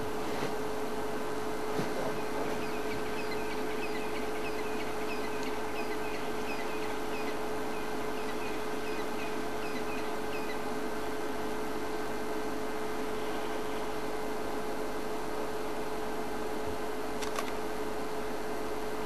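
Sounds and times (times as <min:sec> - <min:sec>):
electrical hum and hiss: 0:00.0 - 0:19.0
bird chirping: 0:02.0 - 0:10.7.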